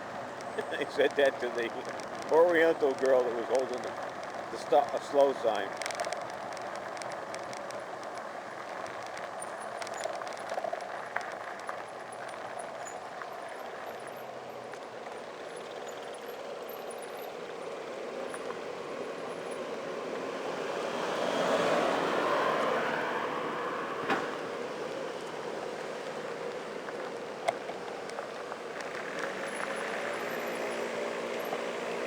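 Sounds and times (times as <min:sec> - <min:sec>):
bicycle clicks and rattles: 0:00.0 - 0:18.6
bicycle rolling on road: 0:00.0 - 0:32.0.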